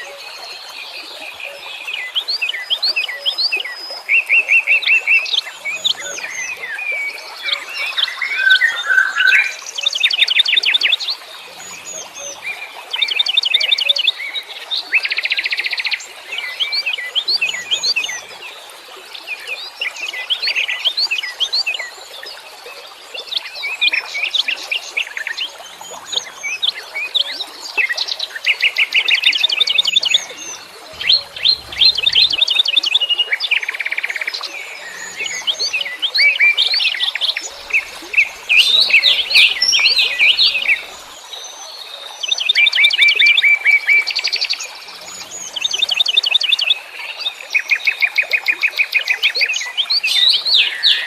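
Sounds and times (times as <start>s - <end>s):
songbirds chirping and whistling: 4.9s - 10.9s, 28.3s - 33.2s, 34.0s - 41.3s.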